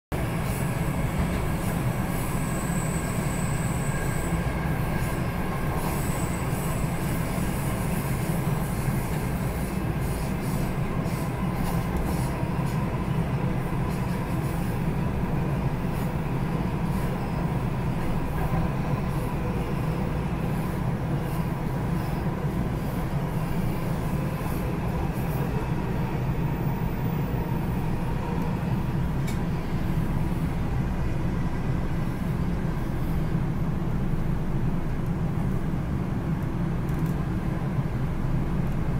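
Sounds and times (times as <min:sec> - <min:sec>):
train car rumbling on track: 0:00.1 - 0:38.9
high wheel squeal: 0:02.0 - 0:07.7.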